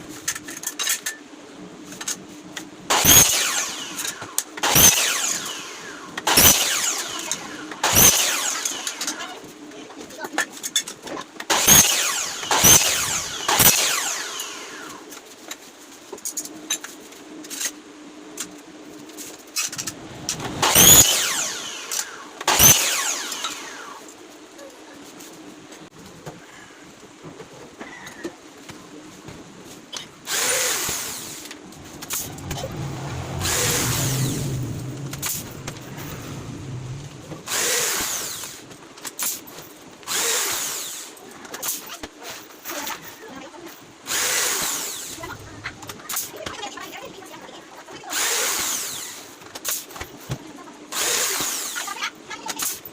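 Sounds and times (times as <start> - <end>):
power drill running: 2.9 - 9.2, 11.5 - 15.0, 19.6 - 24.0, 30.3 - 38.6, 44.1 - 45.5, 48.2 - 49.3, 51.0 - 51.8.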